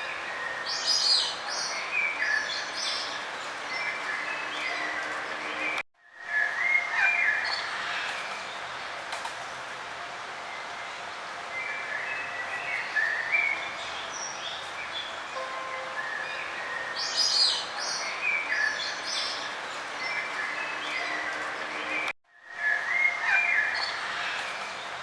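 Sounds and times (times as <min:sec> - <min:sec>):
songbirds chirping and trilling: 0:00.0 - 0:25.0.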